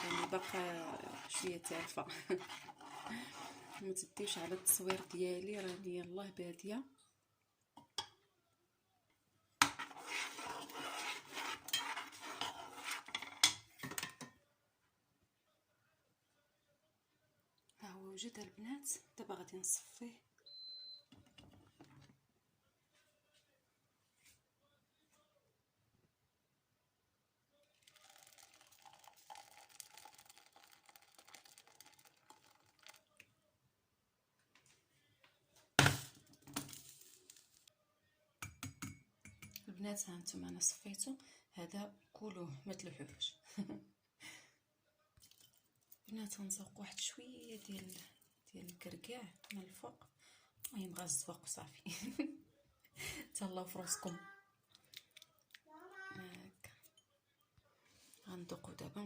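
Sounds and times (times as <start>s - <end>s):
milk trickling through sieve: 0.0s - 5.7s, 27.6s - 33.3s, 45.2s - 46.0s
spoon scraping against a dish: 0.0s - 5.9s, 9.6s - 14.2s.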